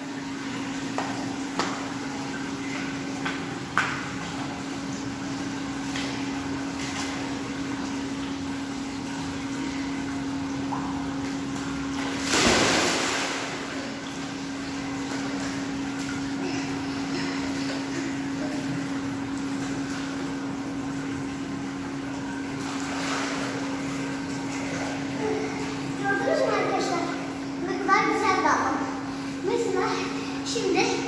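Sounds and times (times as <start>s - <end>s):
steady hum: 0.0s - 31.0s
rush of water: 12.1s - 14.1s.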